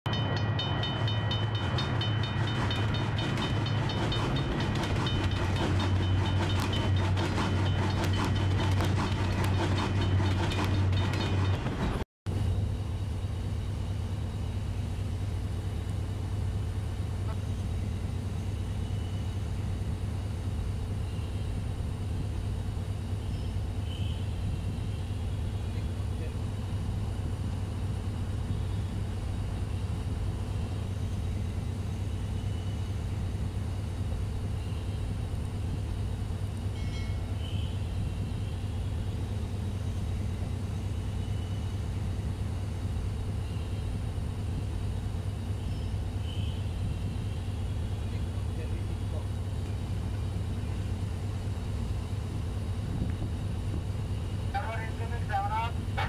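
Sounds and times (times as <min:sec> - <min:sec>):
heavy low train rumble: 0:00.0 - 0:56.0
rapid ringing strikes: 0:00.1 - 0:11.7
standing train humming: 0:00.1 - 0:56.0.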